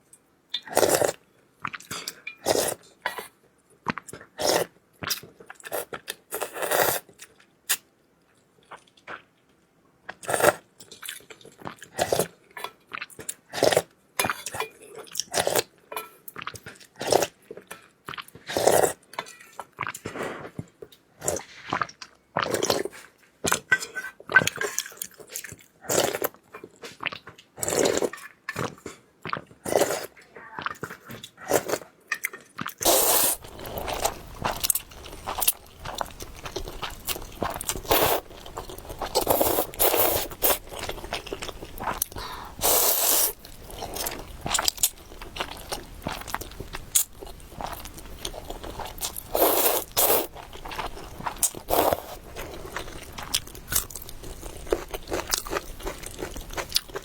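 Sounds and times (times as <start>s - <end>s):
person chewing crunchy noodles: 0.6s - 1.8s, 2.4s - 2.8s, 4.1s - 7.4s, 10.2s - 13.9s, 18.1s - 19.0s, 21.2s - 23.6s, 24.9s - 30.2s, 31.3s - 31.9s, 32.6s - 57.0s.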